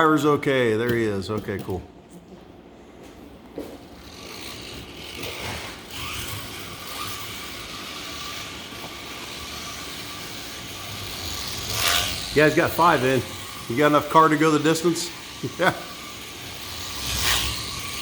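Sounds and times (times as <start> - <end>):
slot car motors whirring: 4.0 - 18.0.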